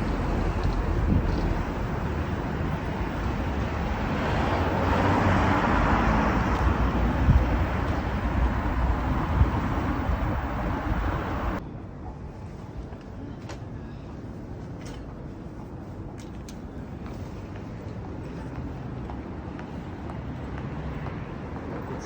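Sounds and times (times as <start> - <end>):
wind rumble on microphone: 0.0 - 13.3
road traffic noise: 0.0 - 22.0.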